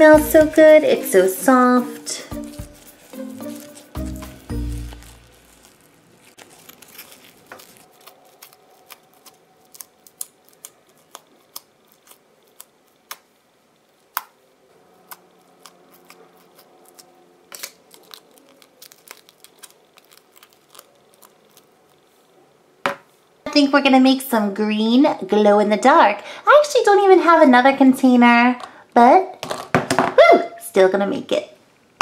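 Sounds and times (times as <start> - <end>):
slime crackling and popping: 0.0 - 13.4, 15.0 - 22.1.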